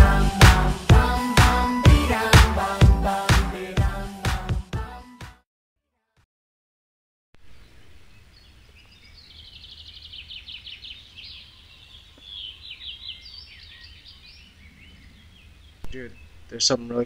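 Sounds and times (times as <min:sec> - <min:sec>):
birds chirping and twittering: 0:07.4 - 0:17.0.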